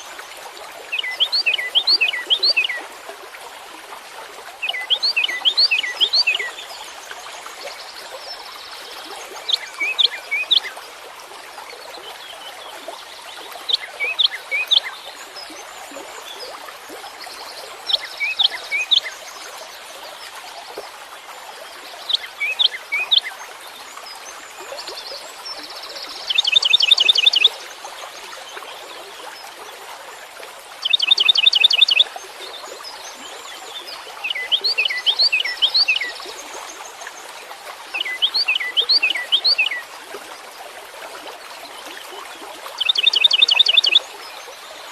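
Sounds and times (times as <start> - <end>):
songbird chirping: 33.5 - 37.1, 42.8 - 44.0.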